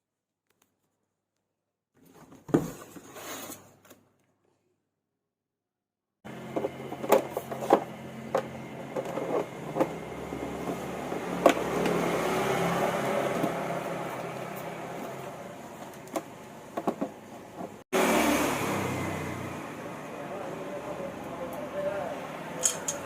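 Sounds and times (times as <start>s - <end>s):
electric fan motor hum: 6.3s - 17.3s.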